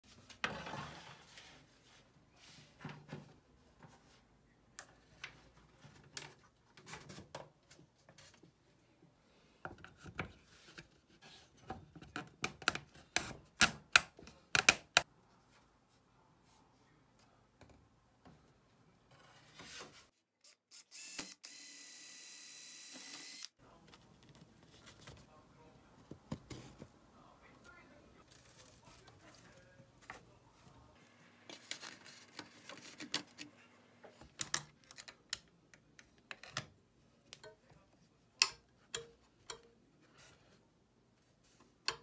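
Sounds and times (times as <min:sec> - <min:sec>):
rotary tool whining: 0:20.7 - 0:23.5.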